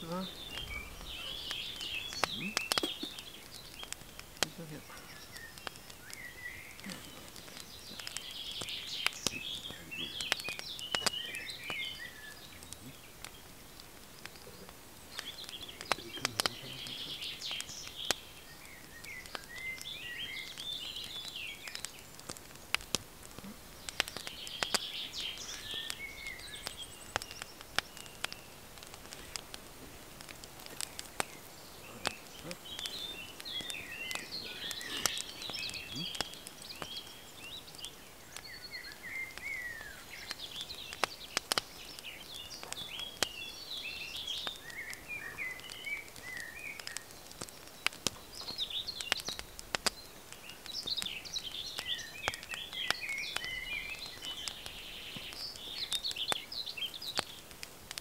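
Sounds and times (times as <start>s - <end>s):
songbird warbling: 0.0s - 13.3s, 30.7s - 40.9s
faint outdoor hiss: 0.0s - 58.0s
sharp clicks and ticks: 0.5s - 6.2s, 6.8s - 11.8s, 15.1s - 19.6s, 20.6s - 29.6s, 30.2s - 31.3s, 32.0s - 37.1s, 39.4s - 43.3s, 46.8s - 51.1s.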